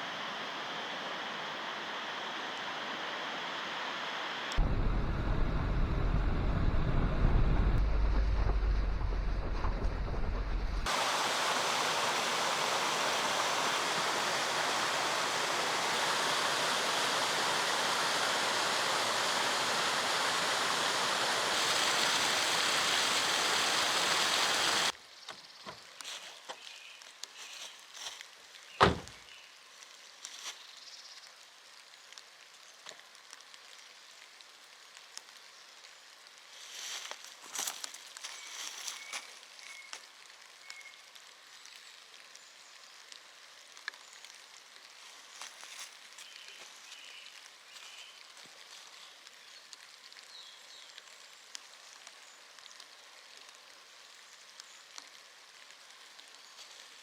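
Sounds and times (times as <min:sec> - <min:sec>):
steady rushing noise: 0:04.0 - 0:23.2.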